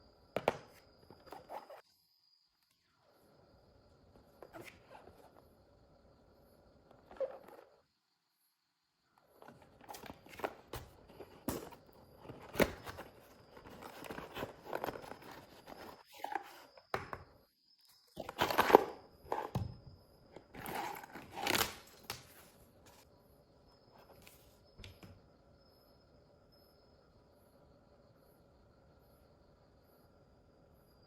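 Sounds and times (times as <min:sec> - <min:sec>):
packaging rustling: 0:09.4 - 0:16.4.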